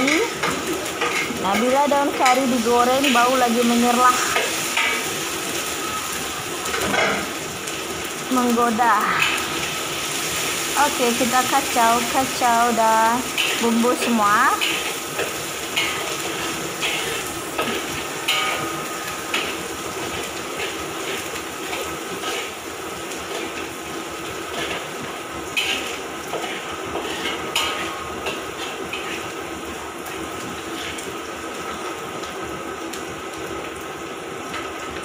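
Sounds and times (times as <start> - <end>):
food sizzling in oil: 0.0 - 35.0
spatula scraping a wok: 13.2 - 23.7, 24.4 - 29.5, 30.6 - 31.1.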